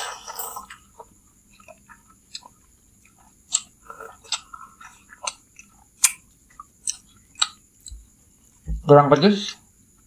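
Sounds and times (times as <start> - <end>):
wet chewing and slurping: 0.2 - 7.5.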